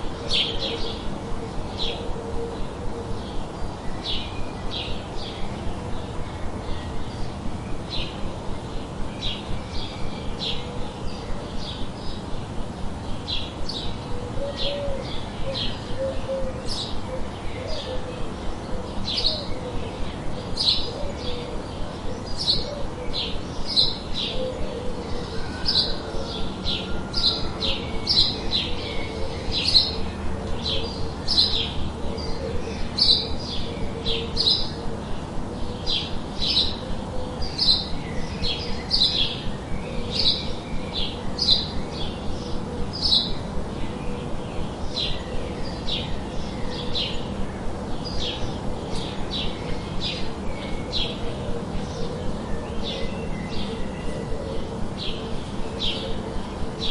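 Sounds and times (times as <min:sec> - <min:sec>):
white noise hiss: 0:00.0 - 0:56.9.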